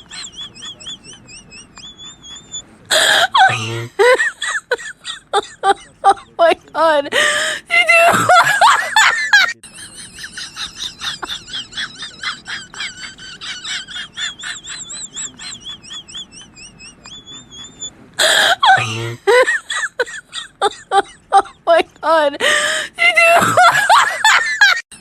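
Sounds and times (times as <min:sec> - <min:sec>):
small bird chirping: 0:00.0 - 0:02.7, 0:14.4 - 0:18.0.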